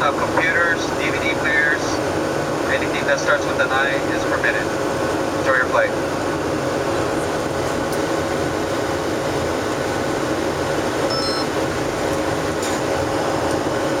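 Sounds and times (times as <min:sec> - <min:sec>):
airplane cabin airflow and engines: 0:00.0 - 0:14.0
faint high beep: 0:11.1 - 0:11.5.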